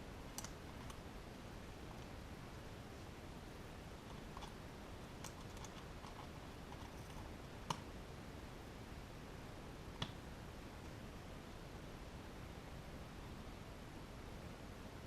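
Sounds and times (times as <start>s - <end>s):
faint steady hiss: 0.0s - 15.0s
sharp clicks: 0.3s - 1.0s.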